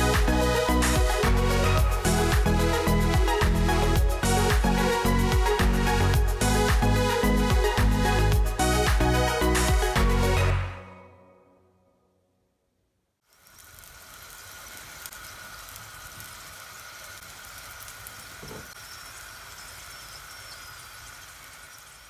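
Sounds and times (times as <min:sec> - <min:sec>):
food sizzling in hot oil: 0:00.0 - 0:08.3, 0:13.2 - 0:22.0
small pops and crackles: 0:13.3 - 0:18.8.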